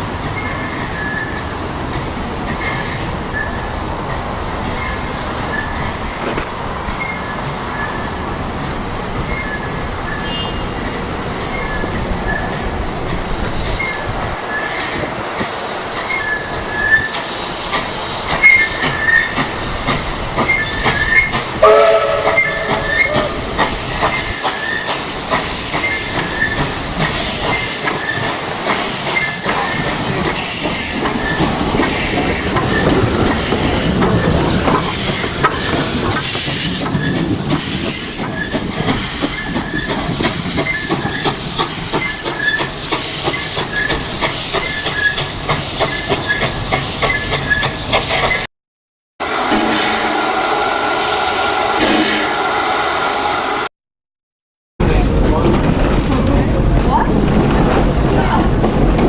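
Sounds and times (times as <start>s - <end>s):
steam hissing: 11.5s - 48.5s, 49.2s - 53.7s
steam whistle blast: 21.6s - 23.7s, 49.2s - 53.7s.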